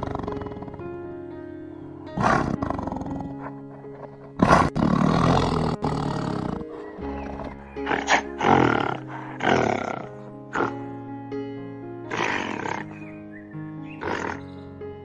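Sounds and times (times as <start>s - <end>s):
animal roaring: 0.0s - 1.0s, 2.0s - 3.6s, 4.4s - 10.9s, 12.1s - 13.1s, 13.9s - 14.6s
background music with held notes: 0.0s - 15.0s.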